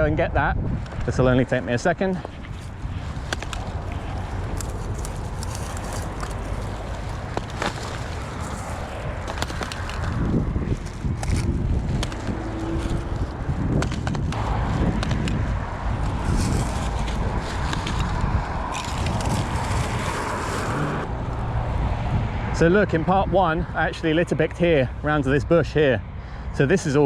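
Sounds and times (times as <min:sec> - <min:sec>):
road traffic noise: 0:00.0 - 0:27.0
footsteps on rough ground: 0:02.0 - 0:21.1.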